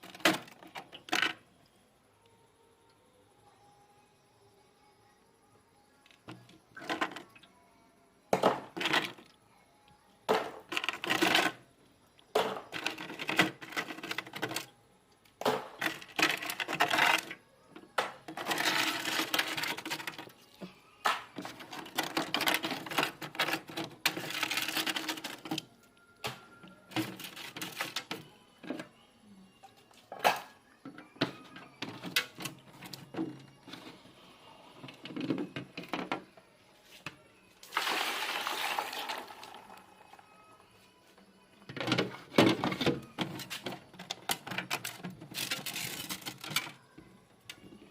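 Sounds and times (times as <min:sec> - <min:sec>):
ice scraping and clattering in freezer: 0:10.3 - 0:11.6, 0:12.4 - 0:14.7, 0:15.5 - 0:17.4, 0:18.2 - 0:20.4, 0:21.4 - 0:25.7, 0:26.9 - 0:28.2, 0:37.7 - 0:39.8, 0:41.8 - 0:46.8.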